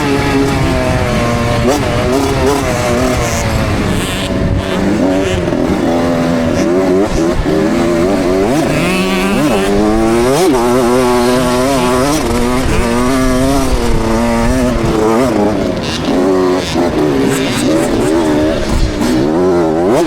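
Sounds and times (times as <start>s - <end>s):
wind on microphone: 0.0s - 15.8s
motocross bike engine revving: 0.0s - 20.0s.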